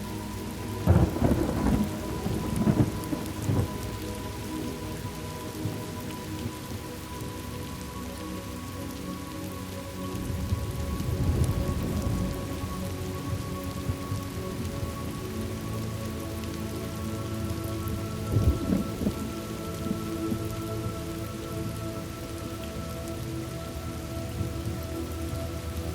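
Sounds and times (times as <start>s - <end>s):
steady rain falling: 0.0s - 25.9s
thunder rumbling: 0.8s - 3.9s, 10.3s - 14.7s, 18.2s - 20.5s.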